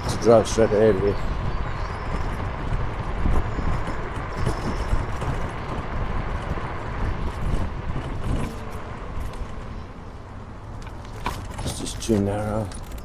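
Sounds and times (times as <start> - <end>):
road and traffic noise: 0.0 - 13.0
rushing wind: 0.0 - 13.0.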